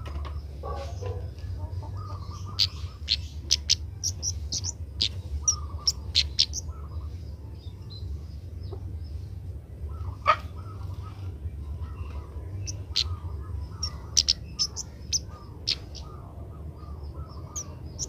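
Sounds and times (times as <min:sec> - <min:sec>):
low hum: 0:00.0 - 0:18.0
bird twittering: 0:01.8 - 0:07.3, 0:09.9 - 0:18.0.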